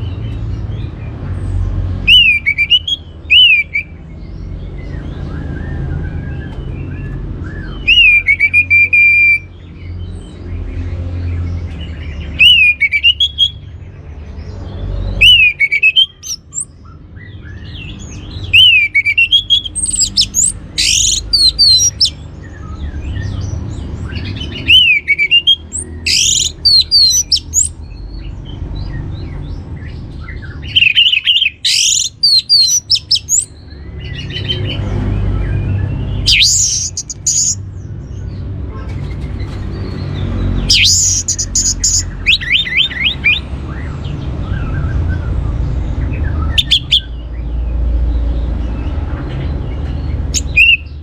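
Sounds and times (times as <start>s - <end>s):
thrush singing: 2.0s - 3.9s, 7.8s - 9.4s, 12.2s - 13.6s, 15.1s - 16.7s, 17.9s - 22.3s, 24.1s - 27.8s, 36.1s - 37.6s, 40.5s - 43.5s, 46.5s - 47.1s, 50.4s - 51.0s.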